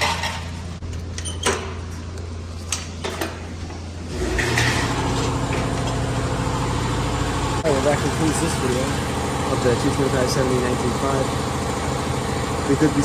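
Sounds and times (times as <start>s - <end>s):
engine running: 3.4s - 13.0s
loud engine: 4.1s - 13.0s.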